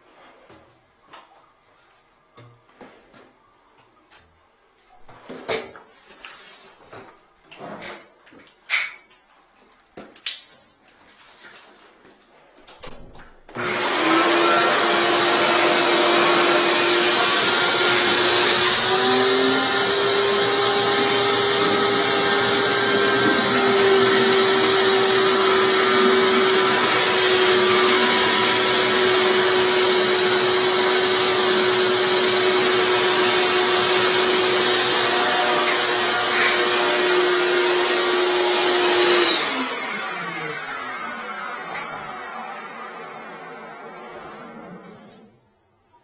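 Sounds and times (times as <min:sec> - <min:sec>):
electric motor whining: 0:13.6 - 0:42.8.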